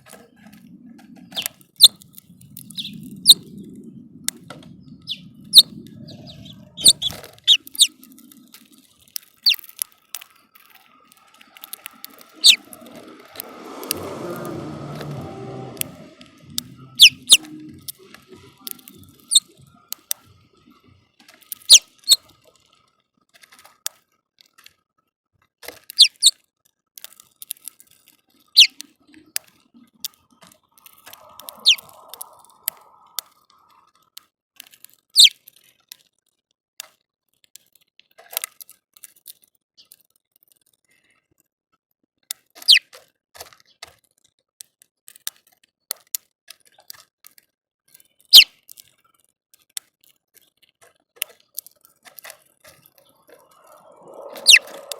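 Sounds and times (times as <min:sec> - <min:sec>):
small birds chirping: 0:00.0 - 0:15.2, 0:15.8 - 0:22.3, 0:25.9 - 0:26.3, 0:28.4 - 0:33.8, 0:35.2 - 0:35.4, 0:42.6 - 0:42.8, 0:51.4 - 0:54.9.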